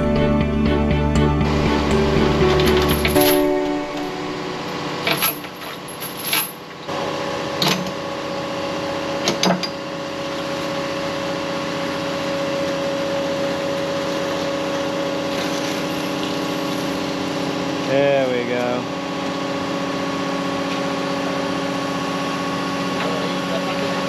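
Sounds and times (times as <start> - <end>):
excavator engine humming: 0.0 - 5.9, 6.6 - 24.0
sharp metal clanks: 2.6 - 4.2, 5.0 - 6.6.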